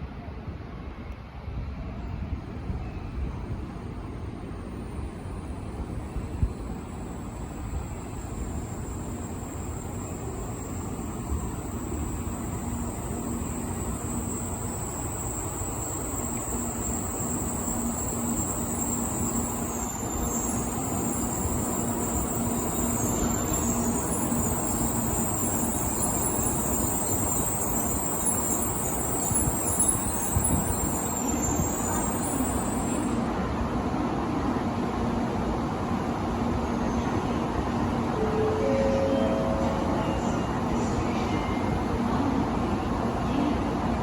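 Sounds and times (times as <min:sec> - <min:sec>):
train rumble and hum: 0:00.0 - 0:44.0
high whine: 0:04.5 - 0:33.3.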